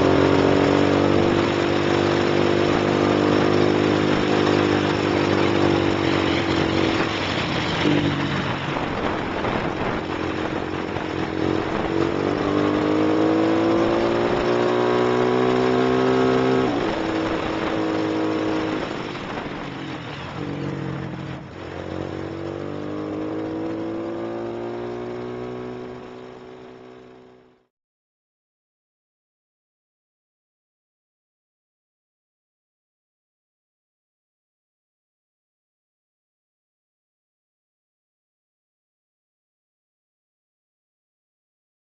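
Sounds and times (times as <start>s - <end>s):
motorcycle accelerating: 0.0s - 27.7s.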